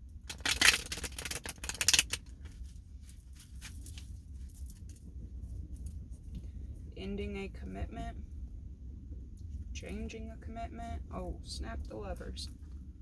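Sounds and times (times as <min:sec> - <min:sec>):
cards being shuffled: 0:00.3 - 0:02.3.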